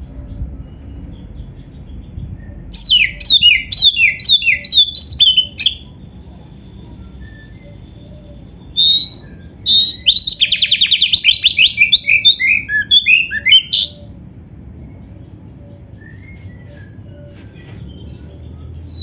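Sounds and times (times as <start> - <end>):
songbird singing: 0.0 - 6.1, 6.7 - 19.0.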